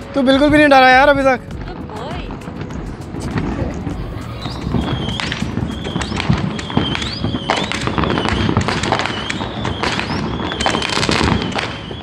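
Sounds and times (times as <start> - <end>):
fireworks crackling and popping: 0.0 - 12.0
rising firework whistle: 3.2 - 12.0.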